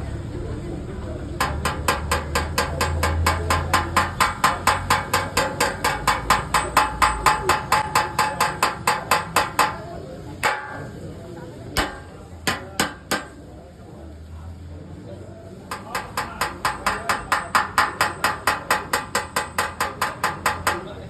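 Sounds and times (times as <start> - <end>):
hammer tapping on sheet metal: 1.4 - 11.1, 11.8 - 13.5, 15.7 - 21.0.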